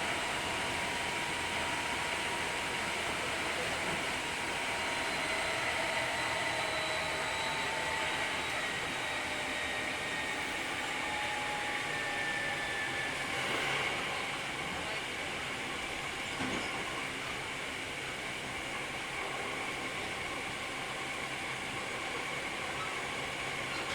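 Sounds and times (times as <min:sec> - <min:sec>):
train wheels rushing on rail: 0:10.2 - 0:23.9.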